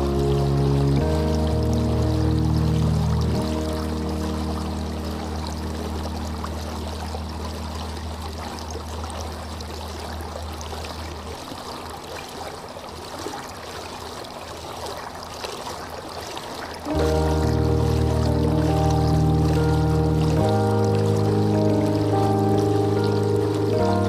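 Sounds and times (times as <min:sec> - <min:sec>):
soft low sustained tone: 0:00.0 - 0:10.9, 0:16.9 - 0:24.0
stream water flowing: 0:00.0 - 0:24.0.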